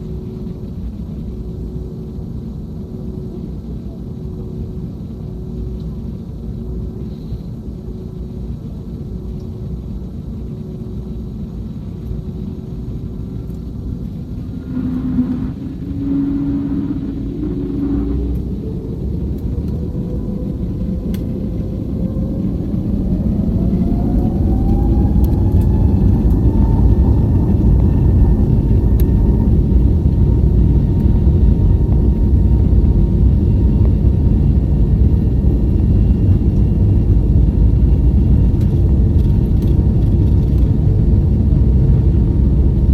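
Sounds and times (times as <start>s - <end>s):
jet engine whine rising: 0.0s - 42.9s
loud steady engine rumble: 13.5s - 42.9s.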